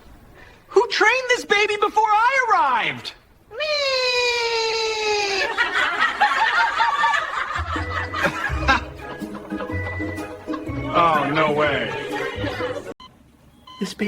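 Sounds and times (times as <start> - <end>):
group laughing: 5.1 - 13.0
music with pulsing bass: 7.6 - 11.2.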